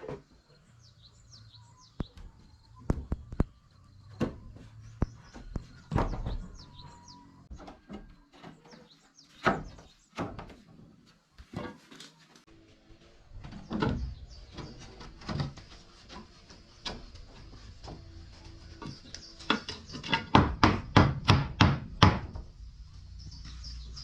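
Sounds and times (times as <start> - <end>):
birds chirping: 0.1 - 10.7, 13.2 - 21.0, 22.4 - 24.0
knocks and scrapes of woodwork: 7.5 - 12.5, 13.4 - 22.5.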